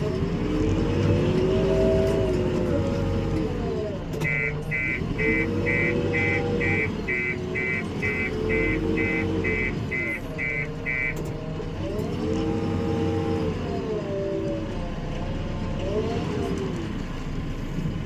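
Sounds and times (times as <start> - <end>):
diesel engine revving: 0.0 - 18.0
reversing alarm beeping: 4.2 - 11.2.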